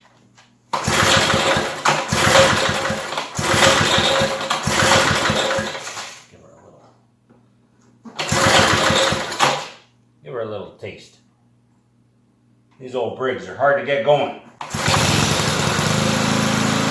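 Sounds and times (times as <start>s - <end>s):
mower engine cranking: 0.7s - 6.2s, 8.1s - 9.8s, 14.6s - 16.9s.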